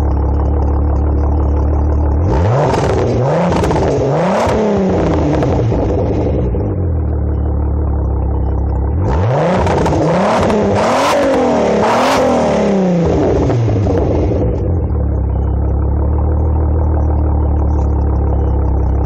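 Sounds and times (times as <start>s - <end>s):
car engine revving: 0.0s - 19.0s
engine idling: 0.0s - 19.0s.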